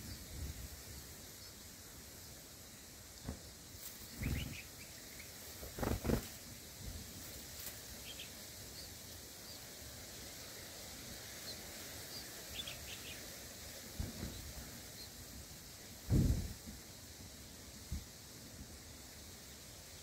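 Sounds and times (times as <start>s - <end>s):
steady hiss: 0.0s - 20.0s
faint high bird chirps: 3.2s - 6.2s.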